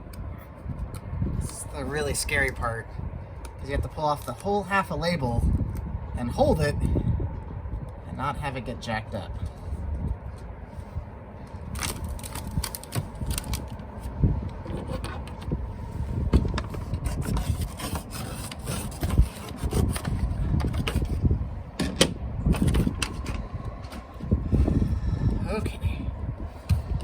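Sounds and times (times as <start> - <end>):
low steady rumble: 0.0 - 27.0
backing paper crinkling: 11.7 - 13.8.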